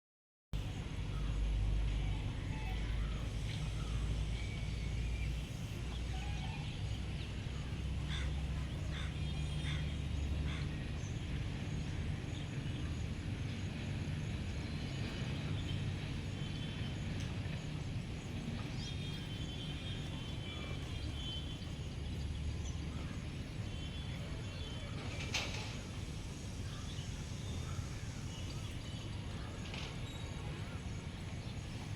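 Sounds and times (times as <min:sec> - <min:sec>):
steady low rumble: 0:00.6 - 0:25.0.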